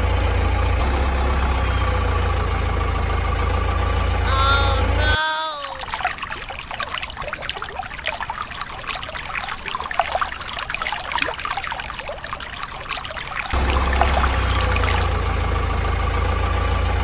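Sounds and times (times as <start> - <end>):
low engine hum: 0.0 - 5.2, 13.4 - 17.0
water splashes and drips: 4.3 - 15.4
water pouring and trickling: 5.4 - 15.4.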